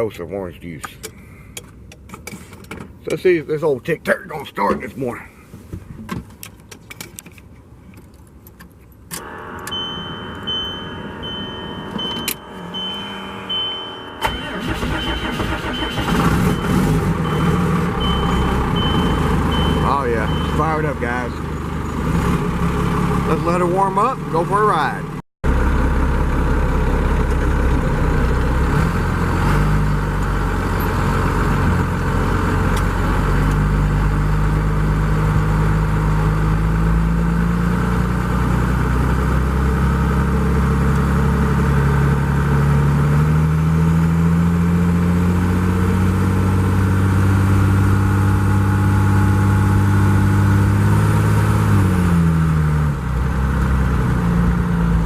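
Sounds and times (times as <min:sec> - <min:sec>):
diesel truck engine running: 0:09.2 - 0:55.0.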